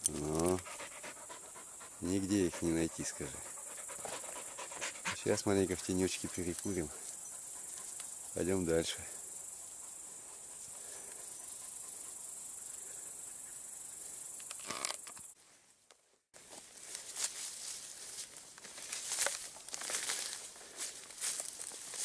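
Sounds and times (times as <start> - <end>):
insect chorus chirring: 0.0 - 15.4
dry vegetation rustling and crackling: 16.4 - 22.0.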